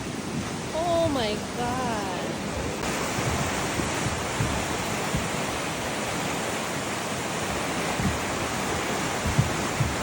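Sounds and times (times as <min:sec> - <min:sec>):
rushing stream water: 0:00.0 - 0:10.0
low knocks of rolling boulders: 0:02.8 - 0:06.4, 0:07.5 - 0:10.0.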